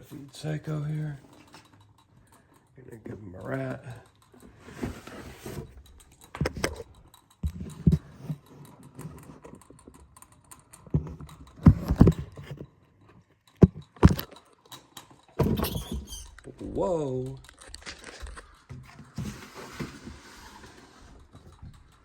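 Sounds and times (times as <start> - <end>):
plastic tub clicking and clattering: 4.6 - 10.1, 10.8 - 12.7, 13.5 - 14.8.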